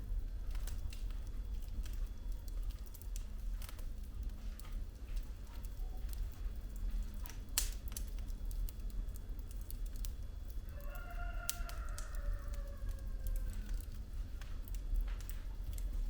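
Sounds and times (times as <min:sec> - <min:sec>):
low fire rumble: 0:00.0 - 0:16.0
wood fire crackling and popping: 0:00.0 - 0:16.0
whistle from burning wood: 0:10.8 - 0:13.8.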